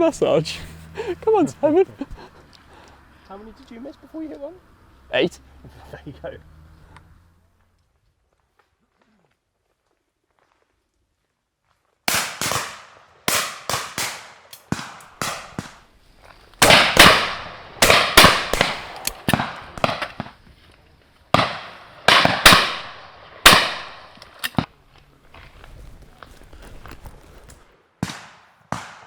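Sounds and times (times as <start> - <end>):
shotgun shots echoing: 12.1 - 15.9, 16.6 - 20.4, 21.3 - 24.7, 28.0 - 29.0.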